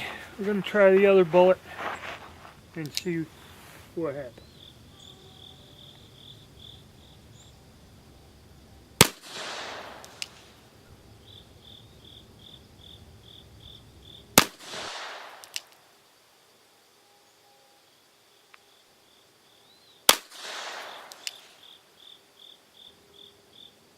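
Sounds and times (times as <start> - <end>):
insect chirping: 0.0 - 23.9
revolver gunshots with echo: 9.0 - 10.6, 14.4 - 15.7, 20.1 - 21.6.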